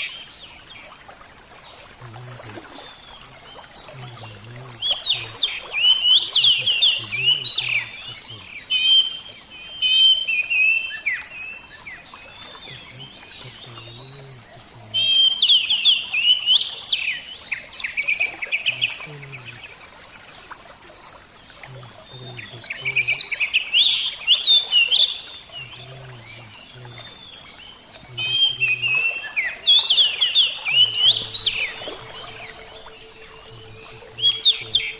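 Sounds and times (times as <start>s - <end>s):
bird singing chirping phrases: 0.0s - 0.9s, 1.6s - 20.6s, 21.2s - 34.9s.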